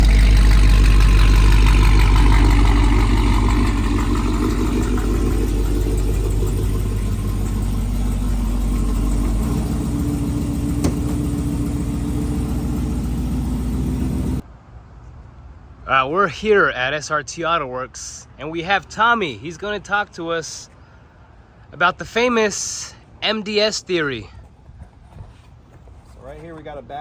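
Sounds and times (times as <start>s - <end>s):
car engine rumbling: 0.0s - 14.4s.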